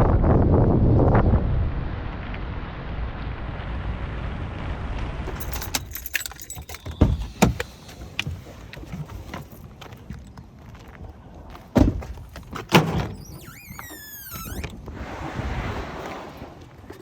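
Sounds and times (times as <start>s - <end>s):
low steady rumble: 0.0s - 9.3s
keys jangling: 5.3s - 8.0s.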